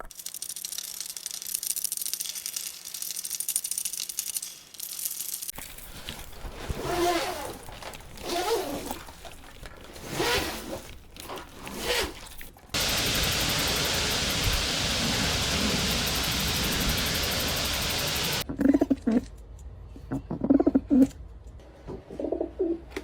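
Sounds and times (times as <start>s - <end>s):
steady even hiss: 12.8s - 18.4s.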